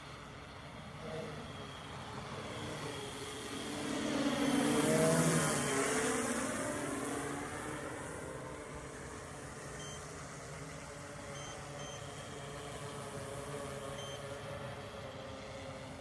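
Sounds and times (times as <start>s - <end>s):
faint high beeps: 9.7s - 10.2s, 11.2s - 12.3s, 13.8s - 14.3s.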